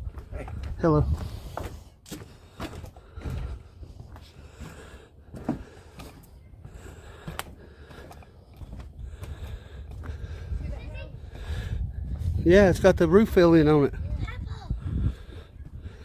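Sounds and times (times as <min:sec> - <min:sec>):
wind rumble on microphone: 0:00.0 - 0:01.9, 0:08.6 - 0:16.0
footsteps on wooden boardwalk: 0:00.0 - 0:16.0.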